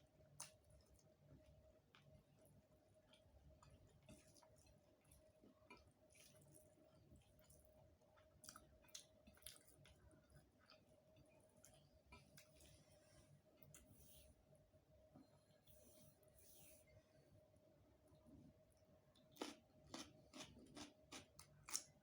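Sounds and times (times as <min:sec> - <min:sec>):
faint steady hum: 0:00.0 - 0:22.0
person chewing food: 0:00.2 - 0:14.2, 0:19.1 - 0:22.0.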